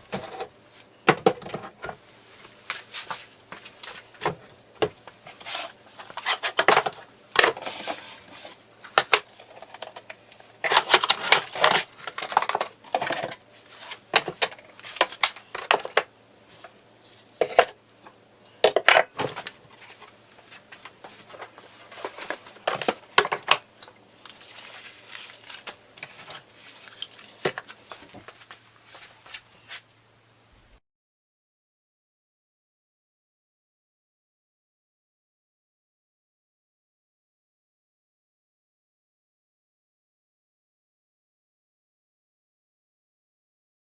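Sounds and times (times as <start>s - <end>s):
hard objects clattering: 3.8s - 16.1s, 18.5s - 28.6s.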